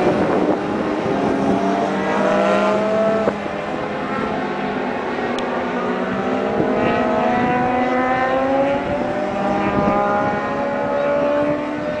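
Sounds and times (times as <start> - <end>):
motorcycle engine accelerating: 0.0 - 4.7, 5.3 - 12.0.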